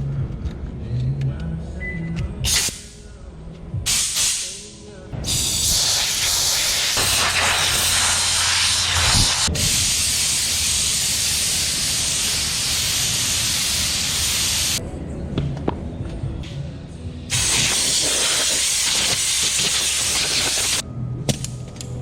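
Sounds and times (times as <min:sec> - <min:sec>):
air hose hissing: 0:05.2 - 0:14.8, 0:17.3 - 0:20.8.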